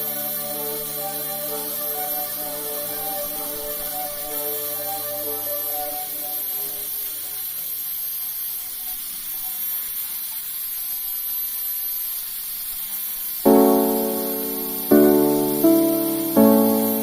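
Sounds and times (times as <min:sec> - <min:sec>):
steady hiss: 0:00.0 - 0:07.5, 0:13.5 - 0:17.0
faint high-pitched tone: 0:00.0 - 0:07.6, 0:13.5 - 0:17.0.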